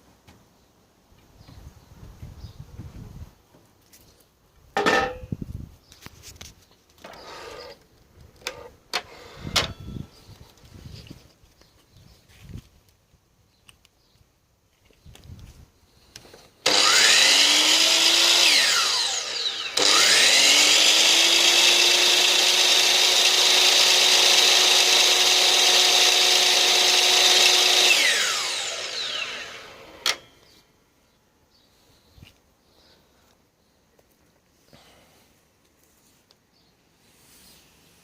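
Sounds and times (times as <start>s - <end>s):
mitre saw motor whining: 7.0s - 7.8s, 16.6s - 30.5s.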